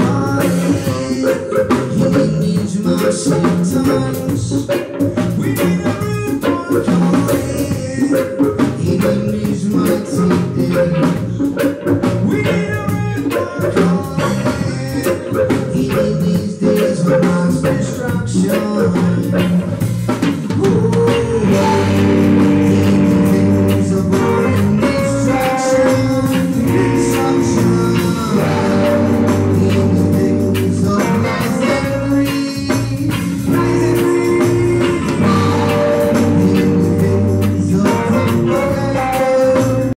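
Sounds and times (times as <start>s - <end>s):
drum kit: 0.0s - 40.0s
saxophone melody: 21.4s - 40.0s.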